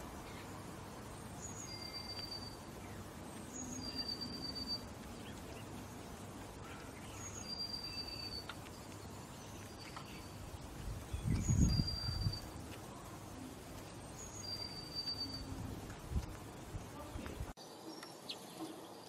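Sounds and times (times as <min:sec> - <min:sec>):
high whistled bird notes: 0:01.4 - 0:02.7, 0:03.5 - 0:04.9, 0:07.1 - 0:08.5, 0:11.1 - 0:12.6, 0:14.2 - 0:15.6.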